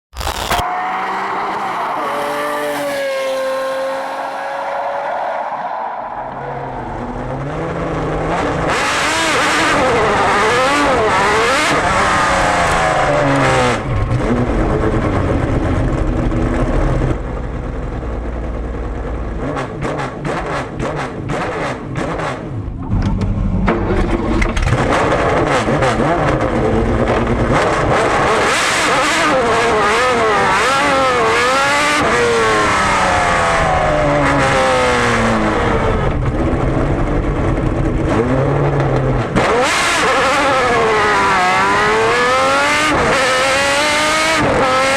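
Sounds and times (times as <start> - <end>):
exhaust crackles and pops: 0.1 - 0.7
race car engine at full throttle: 0.2 - 44.9.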